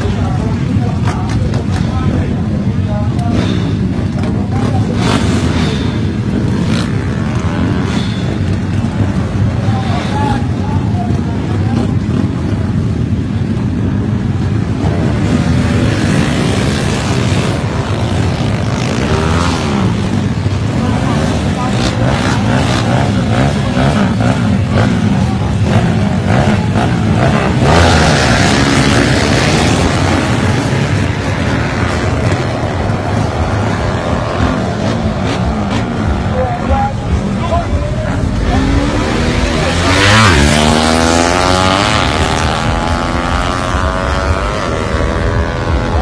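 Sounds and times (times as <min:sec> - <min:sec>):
motor vehicle engines rumbling: 0:00.0 - 0:46.0
sudden rush of noise: 0:24.5 - 0:46.0.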